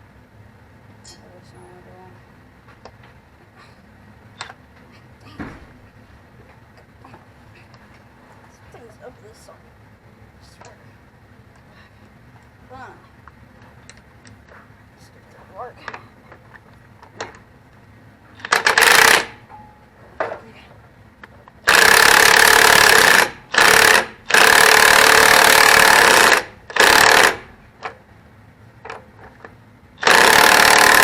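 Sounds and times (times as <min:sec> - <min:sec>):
impact wrench bursts: 0:18.4 - 0:19.5, 0:21.6 - 0:27.6, 0:30.0 - 0:31.0.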